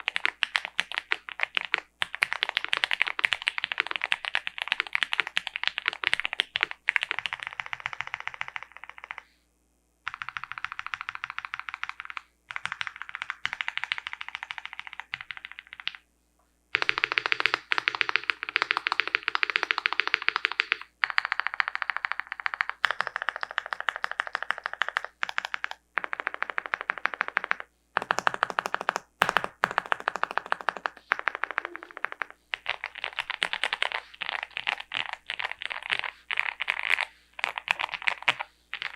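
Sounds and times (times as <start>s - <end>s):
fast typing on mechanical keyboard: 0.0s - 9.2s, 10.1s - 16.0s, 16.8s - 38.9s.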